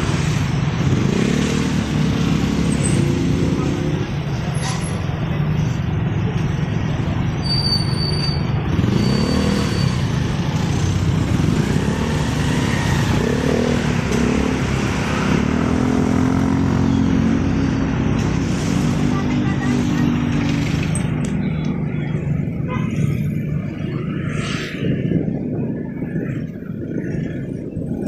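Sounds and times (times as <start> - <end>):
road and wind noise: 0.0 - 28.0
motorcycle engine rumble: 9.9 - 28.0.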